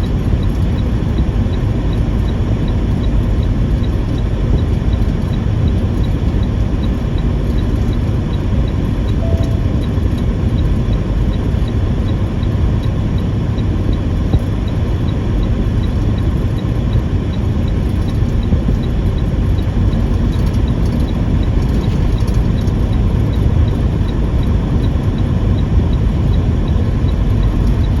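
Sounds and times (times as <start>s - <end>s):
faint regular ticking: 0.0s - 28.0s
truck engine and tyres rumbling: 0.0s - 28.0s.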